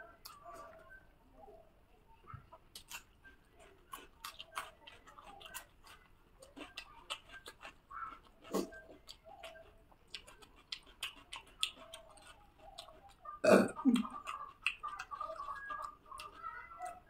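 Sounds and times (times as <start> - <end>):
chewing with lip smacks: 0.1 - 1.0, 2.3 - 17.0
low throat sound: 13.4 - 14.0.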